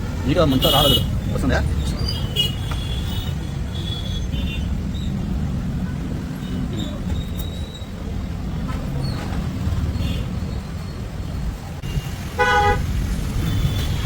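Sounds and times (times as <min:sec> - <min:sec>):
low rumble of road traffic: 0:00.0 - 0:14.0
vehicle horn honk: 0:11.8 - 0:12.9.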